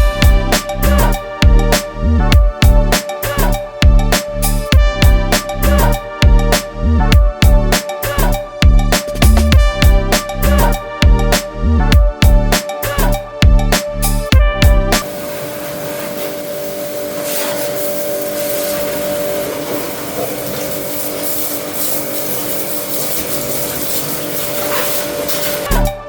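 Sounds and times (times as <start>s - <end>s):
hissing rush: 15.0s - 25.7s.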